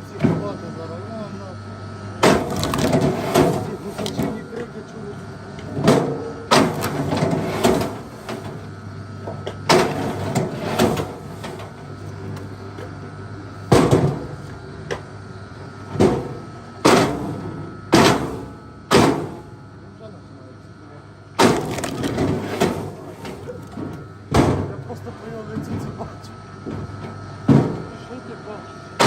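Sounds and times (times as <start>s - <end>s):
axe chopping wood: 21.4s - 22.8s.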